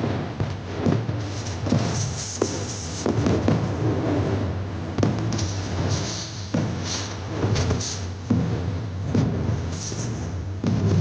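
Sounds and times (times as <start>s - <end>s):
fireworks bursting: 0.0s - 4.1s, 5.0s - 11.0s
low rumble: 3.0s - 11.0s.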